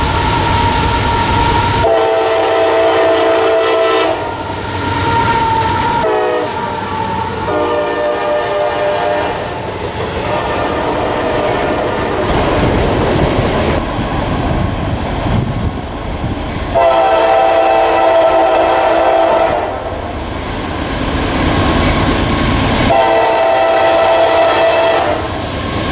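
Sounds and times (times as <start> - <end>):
locomotive air horn: 0.0 - 9.6, 10.3 - 12.2, 16.8 - 19.9, 22.8 - 25.9
train wheel clatter: 0.0 - 17.0, 20.0 - 25.9
train rumble: 0.0 - 25.9.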